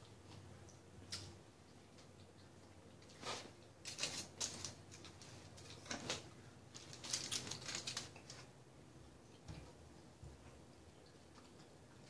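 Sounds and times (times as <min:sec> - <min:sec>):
crisp chewing and crackling: 0:00.0 - 0:08.6.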